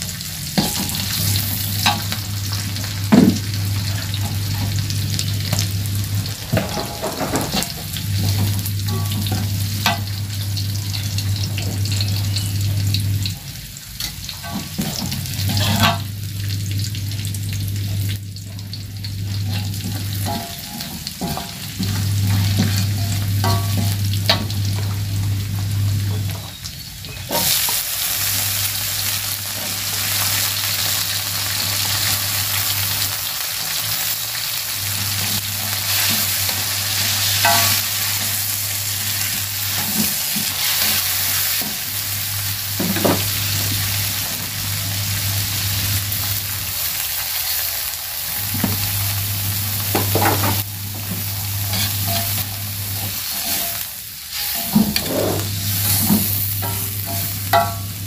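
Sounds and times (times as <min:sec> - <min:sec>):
vegetables sizzling in hot oil: 0:00.0 - 0:58.0
metal spatula scraping a pan: 0:14.0 - 0:16.1, 0:19.5 - 0:24.4, 0:35.2 - 0:38.0, 0:51.7 - 0:57.8.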